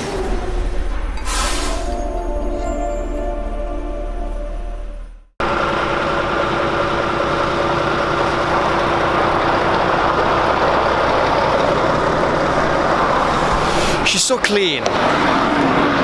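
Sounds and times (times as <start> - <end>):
music: 0.0 - 5.3
lorry diesel engine running: 5.4 - 16.0.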